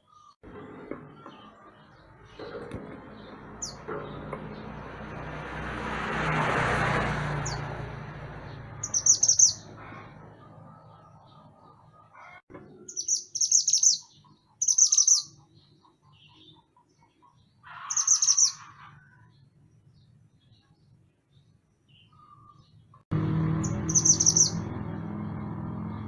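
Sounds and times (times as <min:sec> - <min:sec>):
songbird high chattering song: 0:08.8 - 0:09.7, 0:12.8 - 0:16.7, 0:17.9 - 0:18.7, 0:23.6 - 0:24.7.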